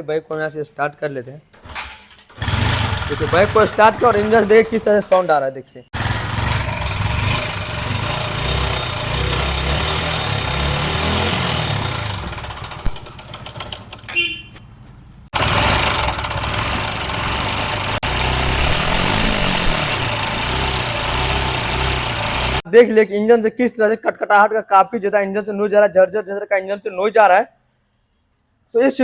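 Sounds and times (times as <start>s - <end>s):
motorcycle engine clattering: 2.2s - 5.3s, 6.0s - 14.7s, 15.3s - 22.6s.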